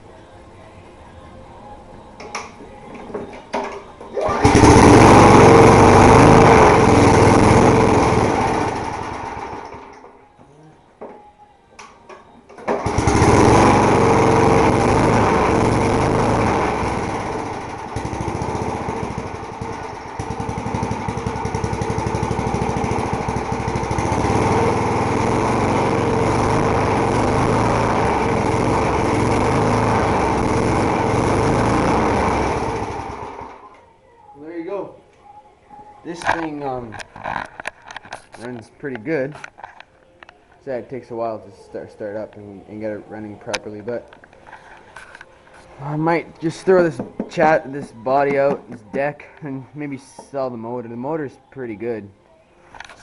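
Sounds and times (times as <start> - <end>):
lawn mower engine running: 4.1 - 10.0, 12.6 - 33.8.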